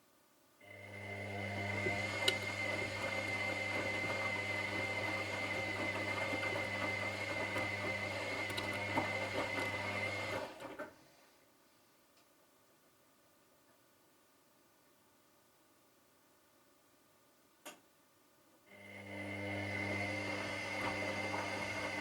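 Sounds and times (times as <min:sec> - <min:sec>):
washing machine motor humming: 0:00.6 - 0:10.8, 0:18.7 - 0:22.0.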